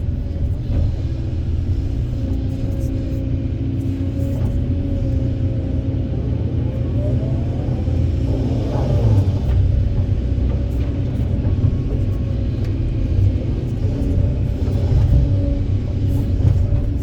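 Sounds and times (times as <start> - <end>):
excavator diesel engine rumbling: 0.0 - 17.0.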